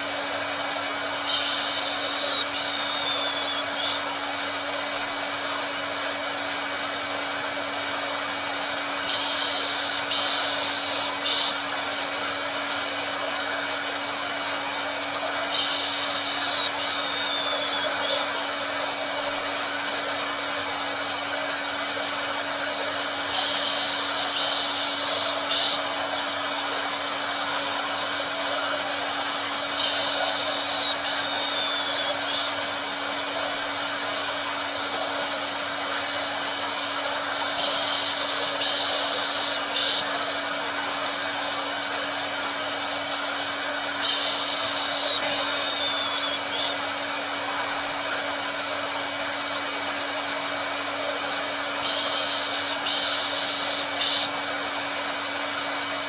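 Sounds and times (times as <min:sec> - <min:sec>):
hair dryer blowing: 0:00.0 - 0:56.0.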